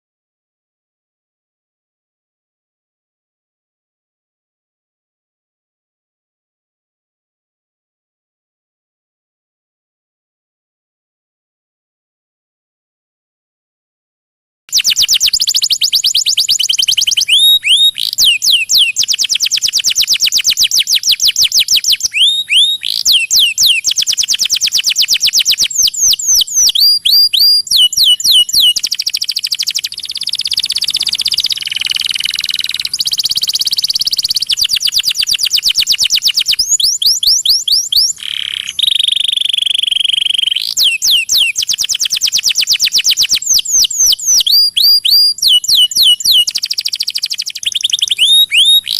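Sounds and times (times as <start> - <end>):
canary singing trills: 14.7 - 48.9.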